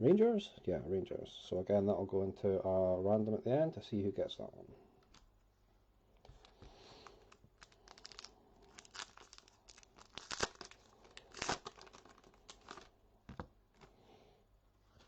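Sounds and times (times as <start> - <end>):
wrapper crinkling and tearing: 5.0 - 5.3, 6.2 - 12.9
cards rustling: 6.2 - 14.0.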